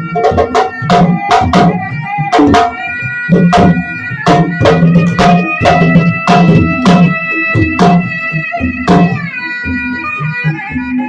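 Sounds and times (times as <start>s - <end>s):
held melodic line: 0.0s - 11.0s
heavy drum strikes: 0.1s - 8.1s.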